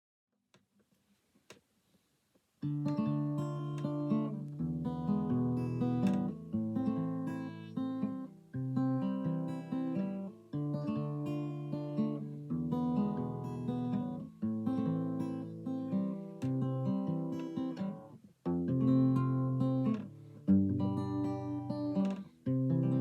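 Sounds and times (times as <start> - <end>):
acoustic guitar chords: 2.6 - 23.0.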